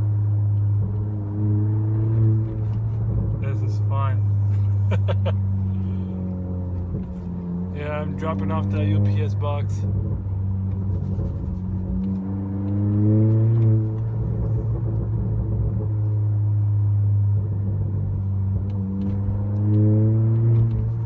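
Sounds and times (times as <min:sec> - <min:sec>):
car exhaust drone: 0:00.0 - 0:21.0.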